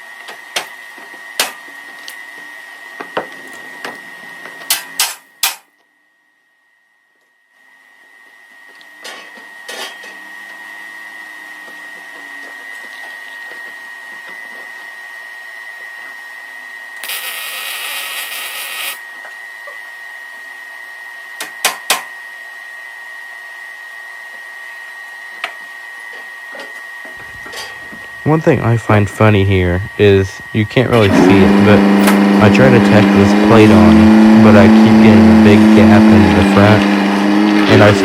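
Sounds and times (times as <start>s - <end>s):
workshop hum with high whine: 0.0s - 38.0s
welder hissing: 17.0s - 19.0s.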